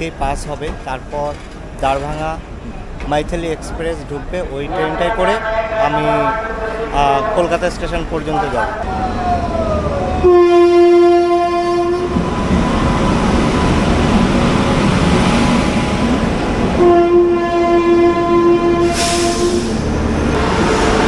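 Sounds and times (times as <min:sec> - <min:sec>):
train rumbling: 0:00.0 - 0:21.0
train horn blasts: 0:04.7 - 0:08.8, 0:10.2 - 0:13.3, 0:16.8 - 0:19.8.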